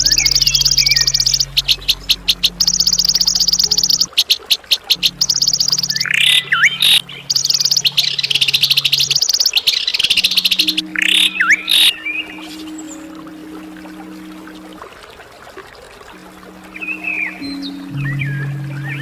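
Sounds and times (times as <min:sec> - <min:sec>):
songbirds trilling: 0:00.0 - 0:14.6
low steady hum: 0:00.0 - 0:19.0.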